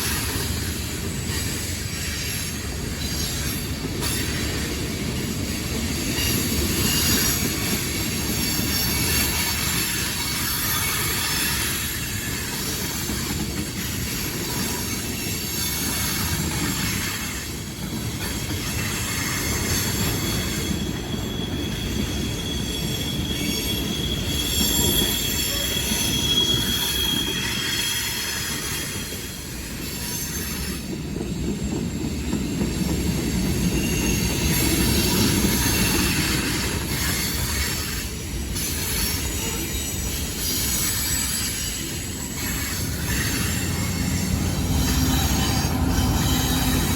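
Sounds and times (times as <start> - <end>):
train wheels rumbling on rail: 0.0 - 46.9
high wheel squeal: 18.6 - 46.9.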